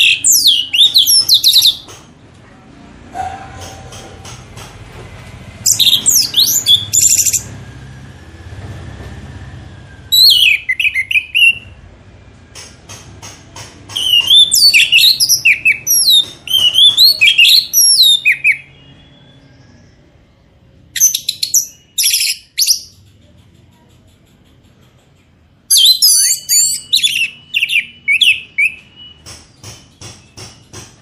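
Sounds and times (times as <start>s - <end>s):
songbird singing: 0.0s - 2.0s, 5.6s - 7.6s, 10.0s - 11.8s, 13.9s - 30.9s.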